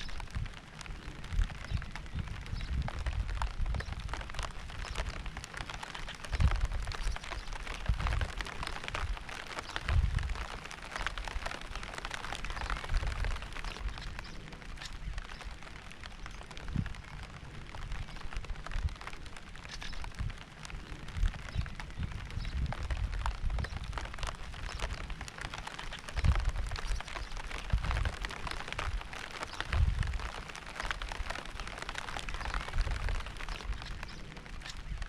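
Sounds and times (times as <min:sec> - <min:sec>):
rain pattering: 0:00.0 - 0:35.0.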